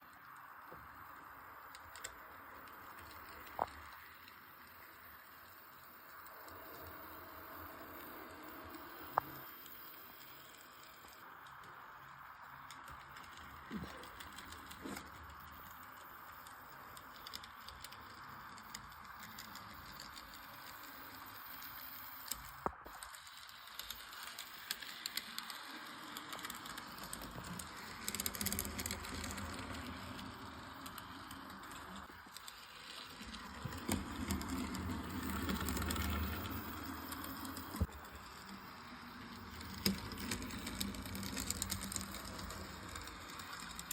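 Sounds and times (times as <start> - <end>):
model train rattling on track: 0.0 - 43.9.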